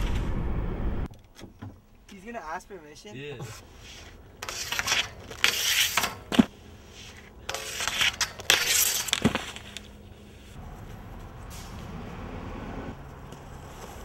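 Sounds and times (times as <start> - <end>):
skis scraping metal rail: 3.5 - 10.6.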